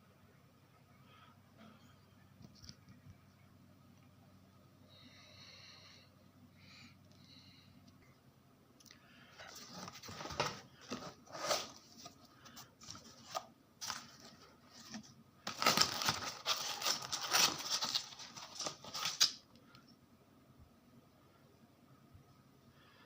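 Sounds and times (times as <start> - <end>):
packaging rustling and tearing: 9.5 - 19.4.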